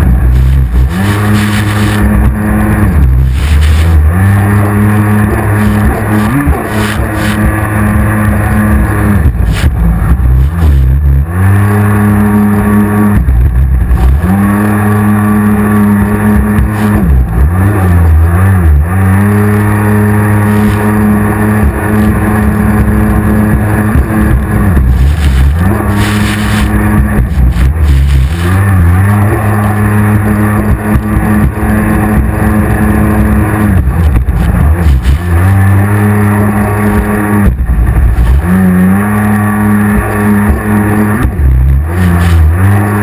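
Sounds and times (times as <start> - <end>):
jet ski engine revving: 0.0 - 43.0.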